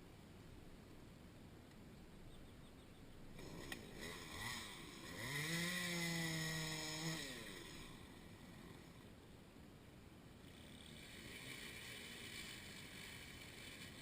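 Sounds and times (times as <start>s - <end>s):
chainsaw engine revving: 3.3s - 9.1s, 10.4s - 14.0s.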